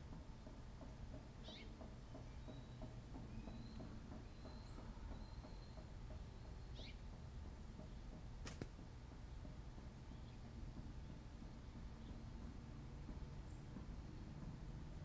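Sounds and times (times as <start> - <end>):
low outdoor rumble: 0.0 - 15.0
bird chirps: 1.4 - 7.2.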